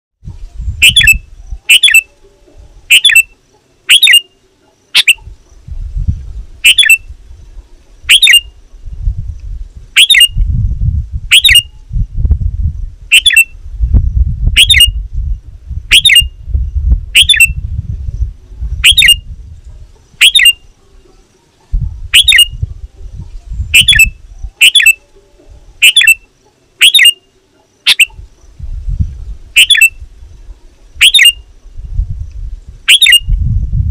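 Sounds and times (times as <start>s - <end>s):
bulbul sharp calls: 0.8s - 5.7s, 6.6s - 8.6s, 9.9s - 10.4s, 11.3s - 11.9s, 13.1s - 13.6s, 14.5s - 15.0s, 15.9s - 16.4s, 17.1s - 17.6s, 18.8s - 19.3s, 19.9s - 28.6s, 29.5s - 31.5s, 32.8s - 33.4s.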